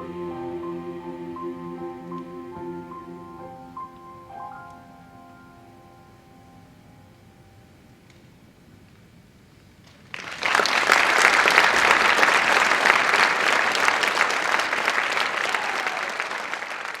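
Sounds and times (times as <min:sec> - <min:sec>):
audience applause: 0:10.0 - 0:17.0.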